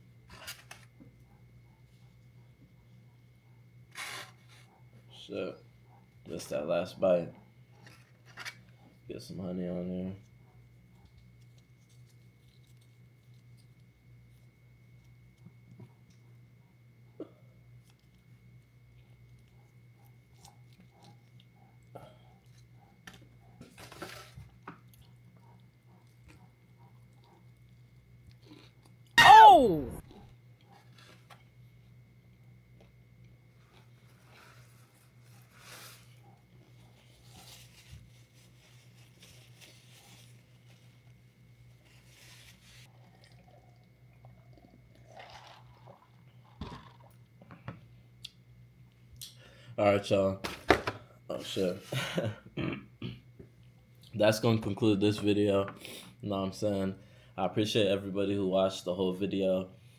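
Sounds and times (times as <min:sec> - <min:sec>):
low electrical hum: 0:00.0 - 0:59.9
crackly crunch of chewing: 0:00.2 - 0:05.0, 0:07.4 - 0:09.1, 0:10.2 - 0:29.2, 0:30.3 - 0:49.4
chewing and mouth noises: 0:18.9 - 0:23.6, 0:24.4 - 0:29.2, 0:42.9 - 0:47.3.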